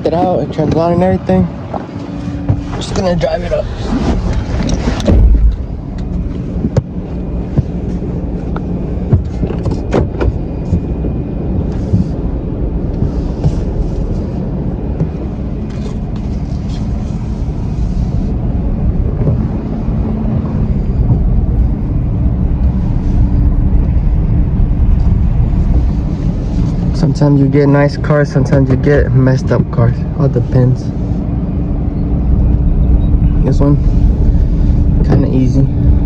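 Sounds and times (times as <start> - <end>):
truck engine running: 0.0 - 36.0.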